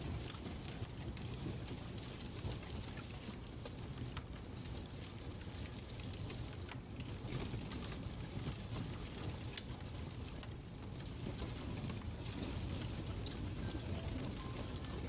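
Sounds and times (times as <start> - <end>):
fireplace crackling: 0.0 - 15.0.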